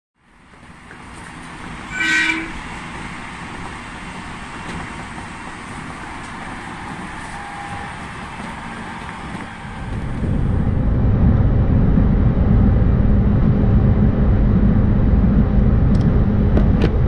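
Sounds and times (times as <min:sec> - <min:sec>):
electric train humming: 0:00.2 - 0:17.0
train horn toot: 0:01.9 - 0:02.8.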